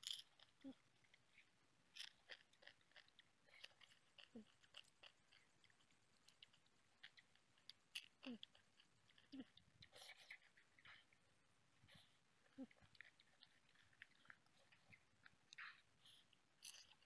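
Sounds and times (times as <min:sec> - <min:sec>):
crab shell crackling: 0:00.0 - 0:11.3
crunching and chewing crab: 0:00.0 - 0:17.0.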